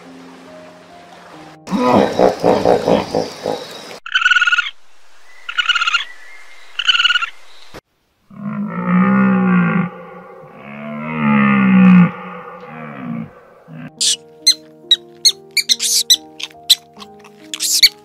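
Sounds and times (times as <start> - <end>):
low drawn-out animal call: 8.3 - 14.2
croaking rattle call: 13.7 - 18.0
short high animal calls: 14.0 - 18.0.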